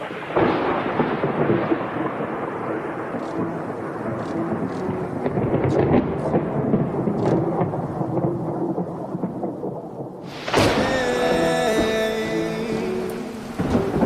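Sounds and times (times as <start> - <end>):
steady rain: 0.0 - 14.0
thunder rumbling: 0.0 - 14.0
loud crash: 10.2 - 12.2
held musical tones: 10.6 - 14.0.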